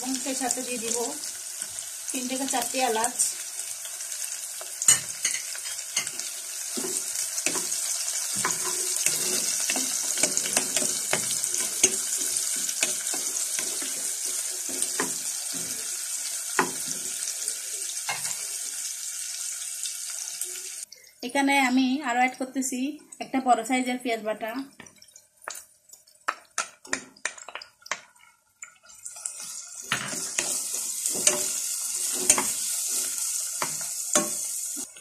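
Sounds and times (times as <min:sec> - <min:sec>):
onions sizzling in hot oil: 0:00.0 - 0:20.9, 0:24.4 - 0:35.0
wooden spoon scraping a pot: 0:05.3 - 0:15.9, 0:29.4 - 0:34.5.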